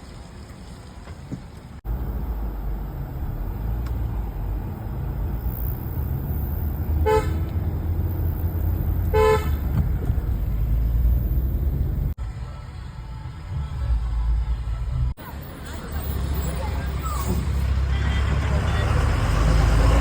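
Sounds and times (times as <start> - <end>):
vehicle rumble: 0.0 - 20.0
horn toots: 5.2 - 10.4.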